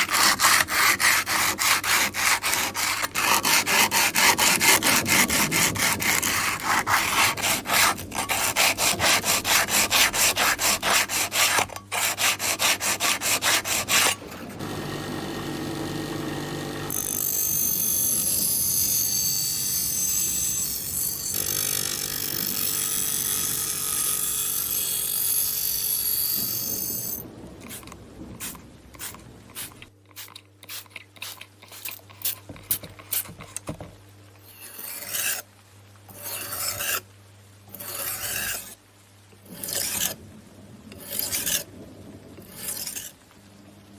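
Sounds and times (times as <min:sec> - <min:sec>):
hand tool rasping metal: 0:00.0 - 0:14.2, 0:34.4 - 0:35.4, 0:36.1 - 0:37.0, 0:37.7 - 0:38.8, 0:39.5 - 0:40.2, 0:41.0 - 0:41.6, 0:42.4 - 0:43.1.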